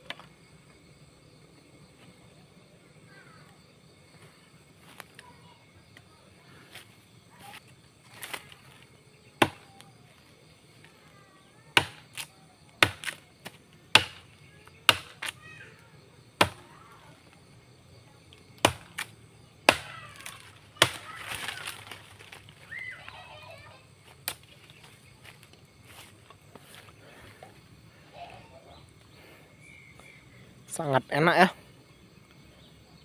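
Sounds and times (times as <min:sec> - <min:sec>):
crackling rustle: 0:06.4 - 0:09.0, 0:19.9 - 0:27.5
machete chopping into tree: 0:09.4 - 0:09.9, 0:11.8 - 0:14.2, 0:14.9 - 0:15.4, 0:16.4 - 0:16.6, 0:18.6 - 0:22.4, 0:24.2 - 0:24.5.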